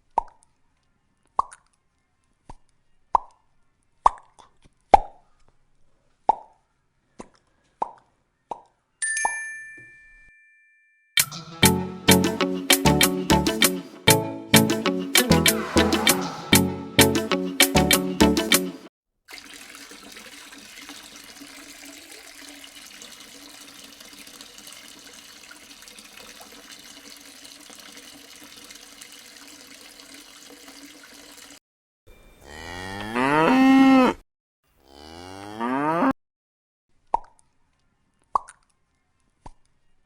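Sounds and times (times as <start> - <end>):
cow mooing: 32.4 - 34.2, 34.8 - 36.1.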